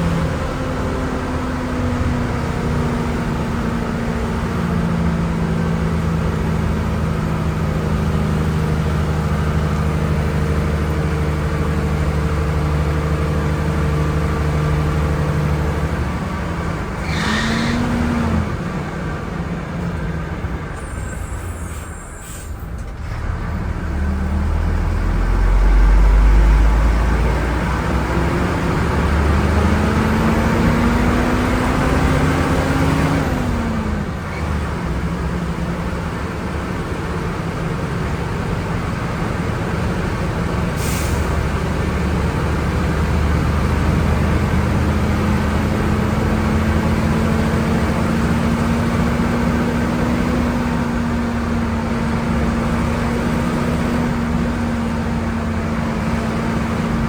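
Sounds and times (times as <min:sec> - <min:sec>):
diesel bus engine pulling: 0:00.0 - 0:57.0
brake air hiss: 0:20.8 - 0:22.8, 0:40.8 - 0:41.4.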